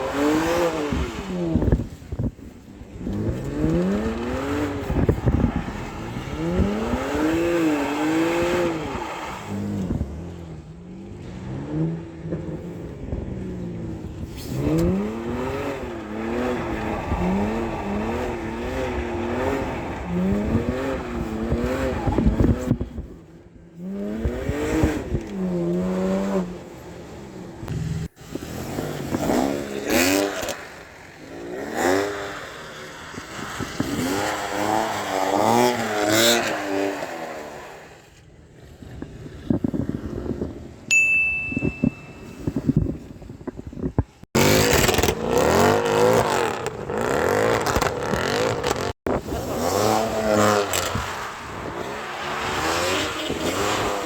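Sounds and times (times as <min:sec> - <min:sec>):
car engine revving: 0:03.0 - 0:23.1, 0:23.7 - 0:37.9, 0:44.3 - 0:54.0.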